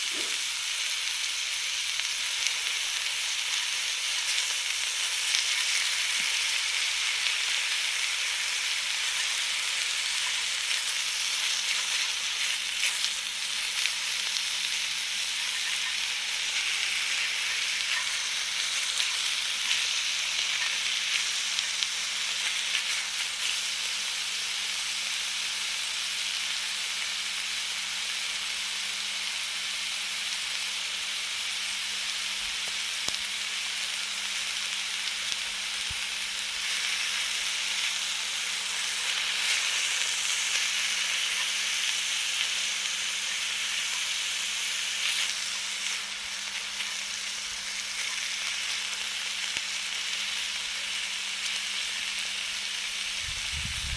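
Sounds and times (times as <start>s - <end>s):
food sizzling on grill: 0.0s - 53.9s
crackles and pops: 1.9s - 23.8s, 32.8s - 52.0s.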